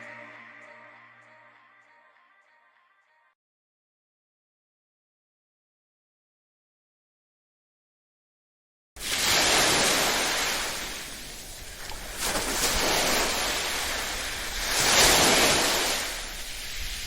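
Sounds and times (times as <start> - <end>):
sea waves washing onto shore: 9.0 - 17.0.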